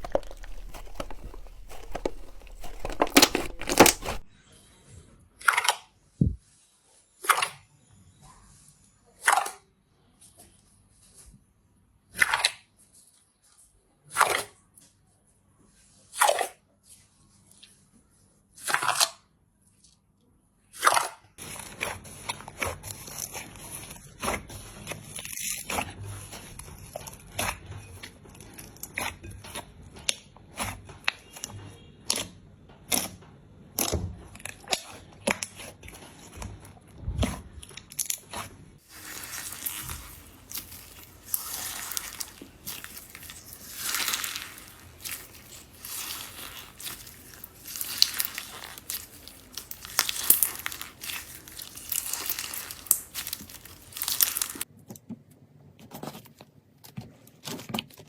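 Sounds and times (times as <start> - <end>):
slime squishing: 0.0 - 4.3, 33.8 - 54.7.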